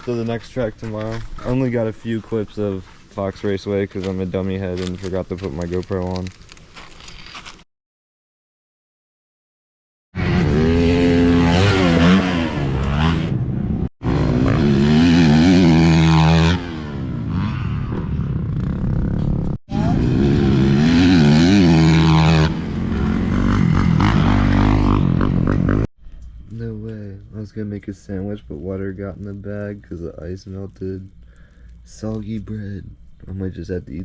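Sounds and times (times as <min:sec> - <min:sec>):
dirt bike engines revving: 0:10.2 - 0:25.9.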